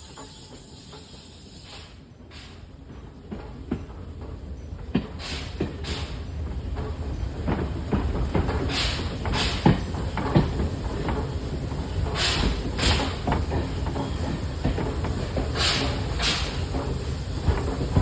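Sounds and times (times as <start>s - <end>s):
train wheels rumbling on rails: 0.0s - 18.0s
short steam hissing bursts: 0.1s - 2.7s, 8.7s - 9.7s, 12.0s - 13.3s, 15.5s - 17.4s.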